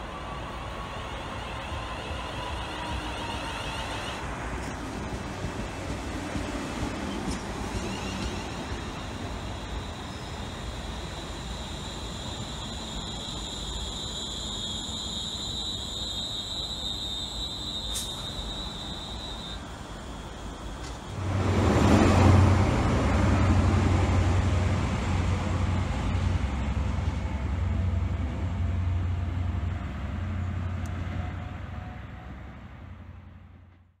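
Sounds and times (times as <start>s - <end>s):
electric train high whine: 0.0s - 33.8s.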